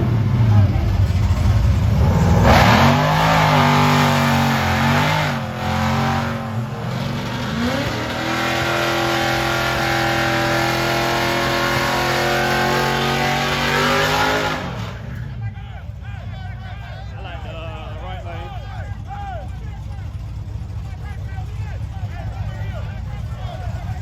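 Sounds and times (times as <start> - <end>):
car engine revving hard: 0.0 - 15.2.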